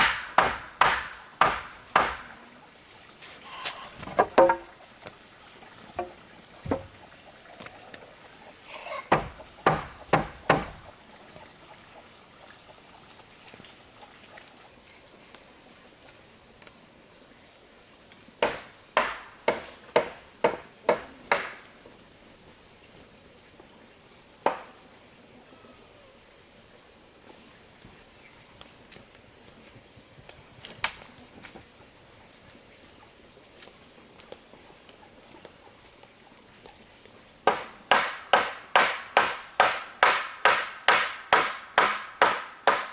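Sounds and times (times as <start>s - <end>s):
hammer blows on wood: 0.0s - 2.4s, 9.1s - 10.9s, 37.5s - 42.9s
high-pitched insect trill: 3.0s - 6.2s.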